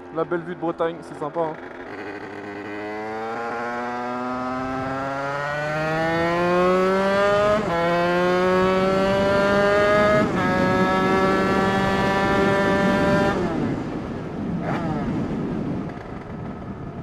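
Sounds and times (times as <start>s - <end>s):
two-stroke moped engine accelerating: 0.0s - 17.0s.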